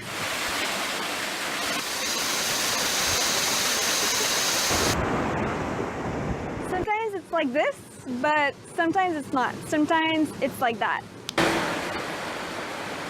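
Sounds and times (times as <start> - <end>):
heavy rain pouring: 0.0 - 6.8, 11.4 - 13.0.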